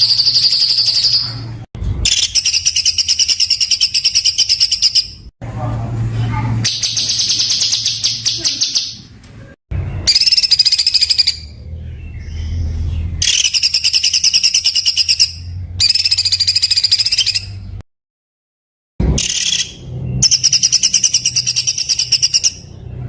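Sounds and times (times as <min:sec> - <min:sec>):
songbird rattling trills: 0:06.7 - 0:09.0.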